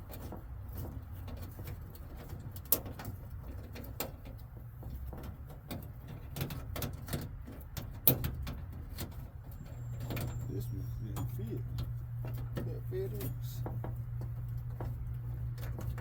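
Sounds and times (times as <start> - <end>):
steady low rumble: 9.6 - 16.0.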